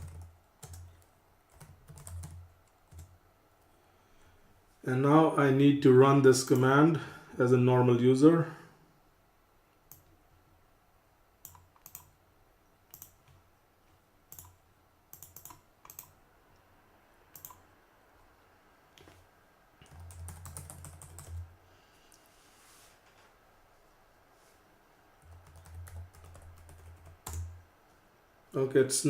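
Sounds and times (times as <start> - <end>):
computer keyboard typing: 0.0 - 3.1, 11.4 - 12.2, 12.9 - 13.4, 14.3 - 16.2, 17.4 - 17.6, 19.8 - 21.5, 25.2 - 27.6.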